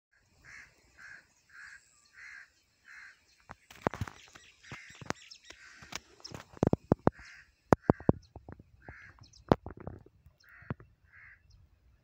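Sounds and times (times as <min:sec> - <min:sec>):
bird cawing: 0:00.1 - 0:03.3, 0:04.6 - 0:11.6
sharp clicks and knocks: 0:03.5 - 0:10.9.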